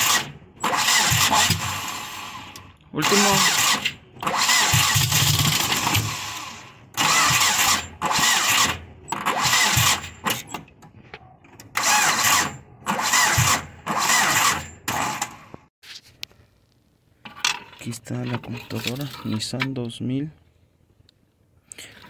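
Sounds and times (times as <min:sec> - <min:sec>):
car engine cranking: 0:00.0 - 0:15.5.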